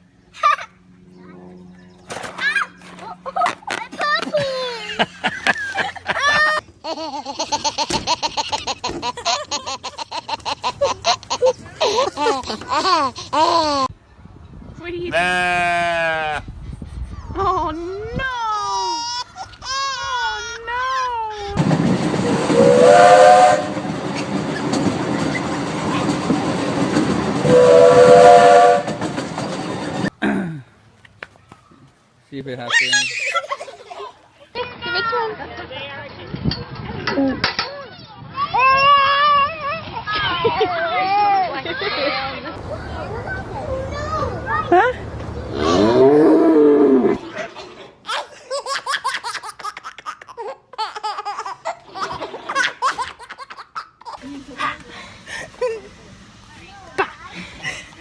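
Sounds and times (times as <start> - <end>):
baby laughing: 4.1 - 14.0, 18.5 - 21.6, 32.7 - 34.2, 47.2 - 54.2
steady rumbling clatter: 21.6 - 22.6, 23.6 - 27.5
multi-tone horn: 22.5 - 23.8, 27.4 - 29.1.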